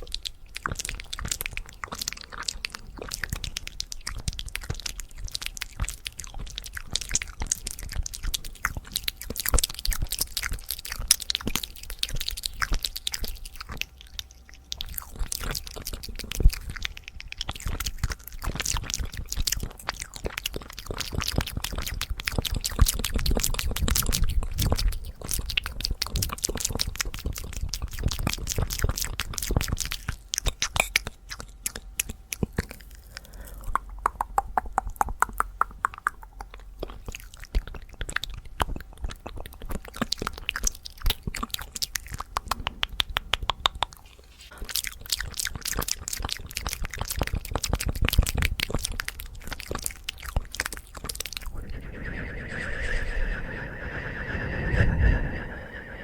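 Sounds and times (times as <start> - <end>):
clicking mouth noises: 0.0 - 51.8
pitched mouth popping: 14.8 - 44.0.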